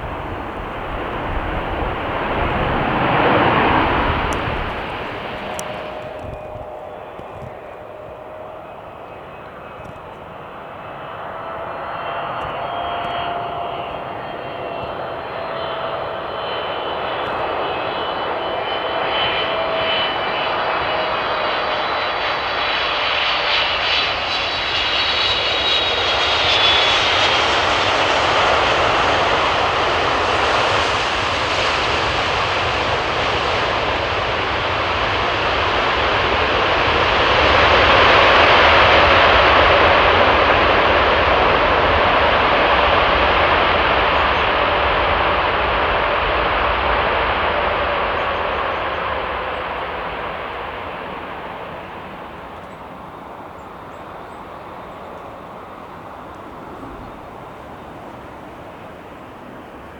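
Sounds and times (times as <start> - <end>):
jet airliner engine roar: 0.0 - 59.9
thin engine whine: 0.0 - 59.9.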